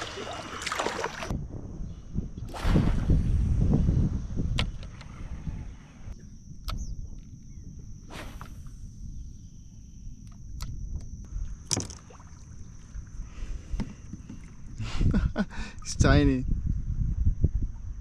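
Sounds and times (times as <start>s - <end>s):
low rumbling of kayak handling: 2.5s - 7.3s, 10.2s - 15.4s.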